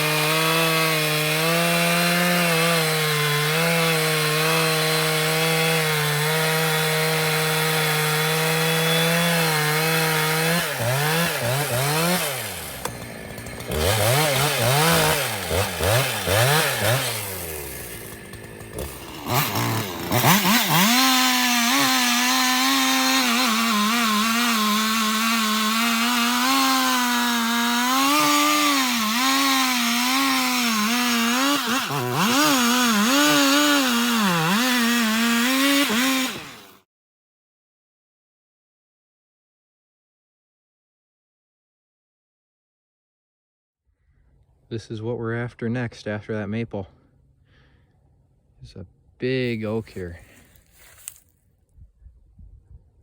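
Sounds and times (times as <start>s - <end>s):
chainsaw cutting log: 0.0s - 36.9s, 49.5s - 51.3s.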